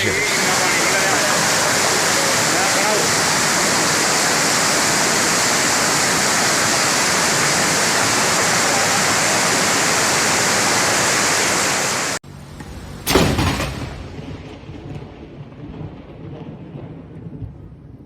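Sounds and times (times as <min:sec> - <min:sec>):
floodwater rushing: 0:00.0 - 0:12.2
loud crack: 0:13.1 - 0:14.5.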